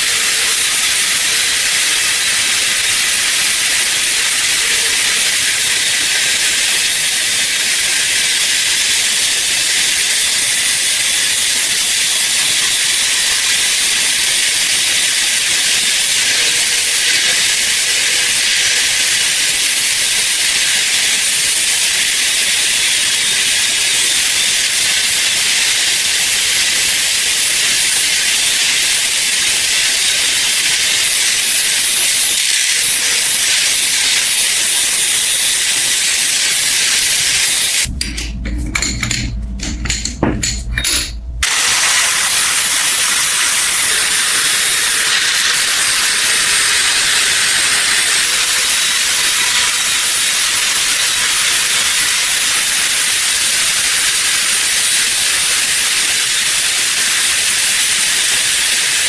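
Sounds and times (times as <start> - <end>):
low rumble with knocks: 37.9 - 41.4.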